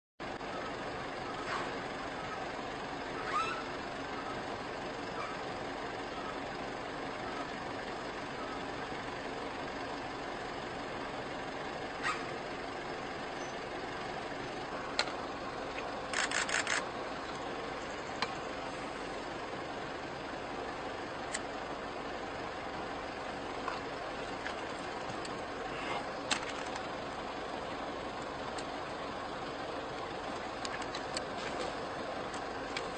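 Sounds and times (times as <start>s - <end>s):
vehicle engine running: 0.2s - 32.9s
quick clicks: 15.0s - 16.9s.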